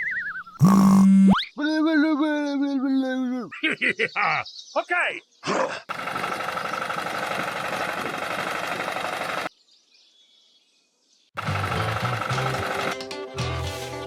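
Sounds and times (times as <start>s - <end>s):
background music: 11.5s - 14.0s.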